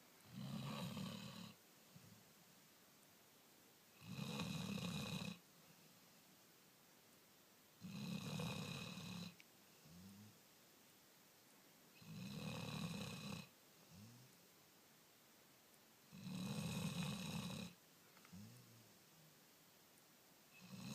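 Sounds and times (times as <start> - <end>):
dog snoring: 0.2 - 1.6, 4.0 - 5.4, 7.8 - 10.3, 12.0 - 14.3, 16.1 - 18.8, 20.6 - 20.9
soft breath sound: 5.4 - 6.5, 17.6 - 19.6.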